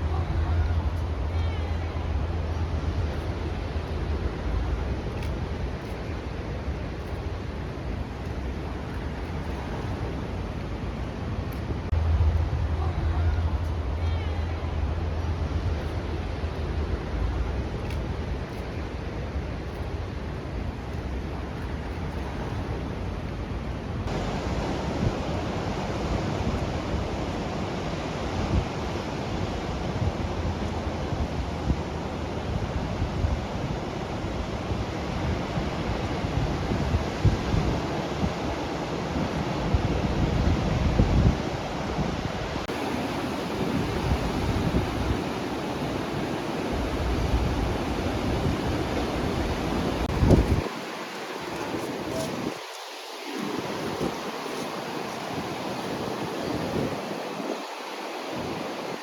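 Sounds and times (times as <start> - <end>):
ocean surf washing on beach: 0.0 - 59.0
wind buffeting microphone: 0.0 - 59.0
wind thuds on microphone: 42.1 - 59.0.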